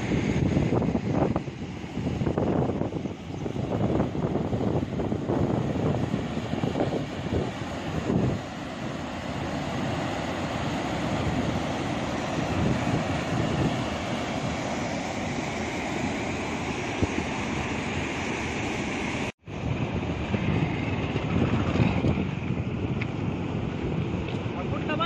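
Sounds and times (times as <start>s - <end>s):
wind buffeting microphone: 0.0s - 17.4s, 19.4s - 25.0s
floodwater rushing: 0.0s - 25.0s.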